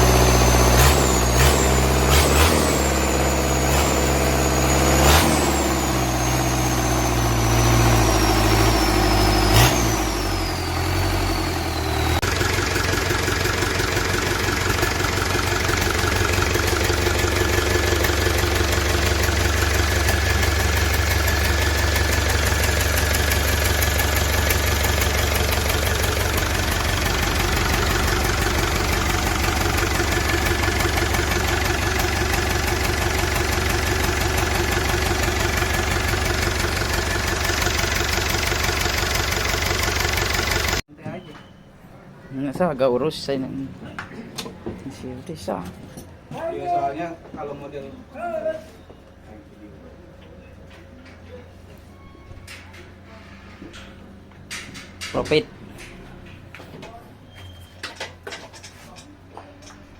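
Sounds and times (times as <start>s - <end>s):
truck diesel engine idling: 0.0s - 40.8s.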